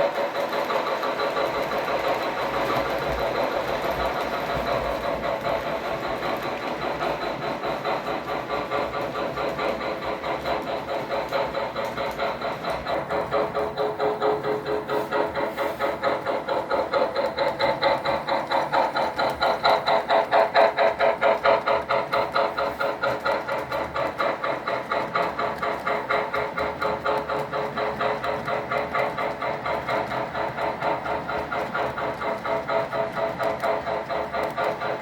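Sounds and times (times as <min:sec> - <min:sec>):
model steam locomotive chuffing: 0:00.0 - 0:35.0.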